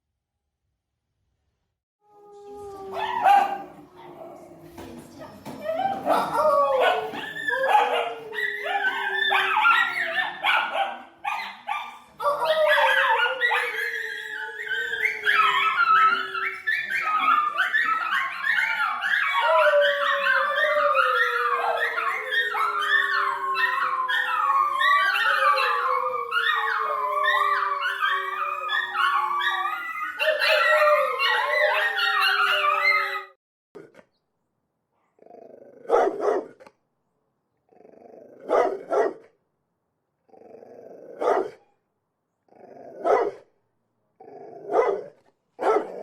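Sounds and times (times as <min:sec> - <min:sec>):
dogs yipping and whining: 0:02.2 - 0:03.7, 0:05.5 - 0:33.4
dogs howling: 0:02.2 - 0:03.9, 0:05.6 - 0:33.4.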